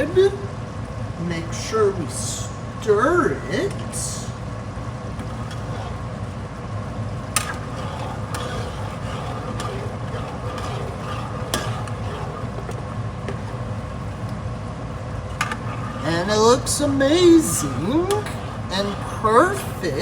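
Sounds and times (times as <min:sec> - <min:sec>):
steady hum: 0:00.0 - 0:20.0
spoon scraping food in pan: 0:05.2 - 0:06.3, 0:07.2 - 0:14.3, 0:15.3 - 0:20.0.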